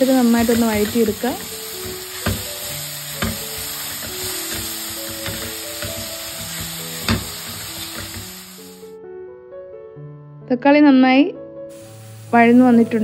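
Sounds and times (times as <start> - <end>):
onions sizzling in oil: 0.0 - 9.0, 11.7 - 13.0
soft background music: 0.0 - 13.0.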